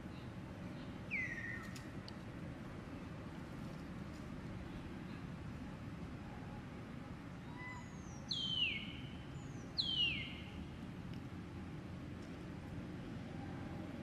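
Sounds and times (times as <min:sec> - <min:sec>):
steady low background noise: 0:00.0 - 0:14.0
bird whistled calls: 0:01.1 - 0:01.7, 0:07.4 - 0:10.6.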